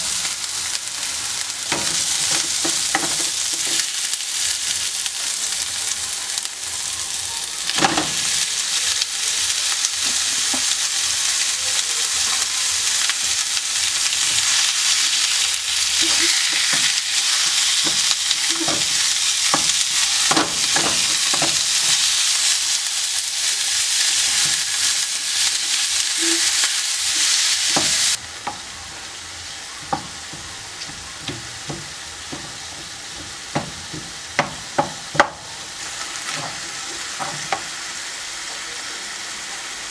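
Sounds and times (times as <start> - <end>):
food sizzling in a pan: 0.0 - 39.9
utensil knocking against pan: 1.7 - 3.8, 16.0 - 22.0, 27.2 - 28.7, 29.8 - 35.7, 36.3 - 37.7.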